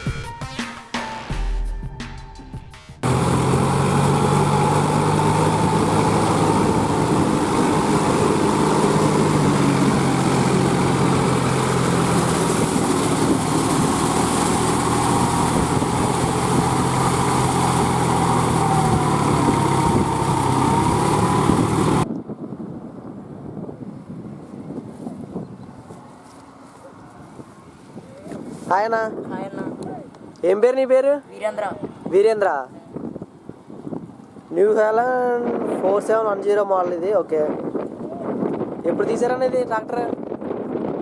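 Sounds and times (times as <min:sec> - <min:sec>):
tractor diesel engine running: 0:03.0 - 0:22.1.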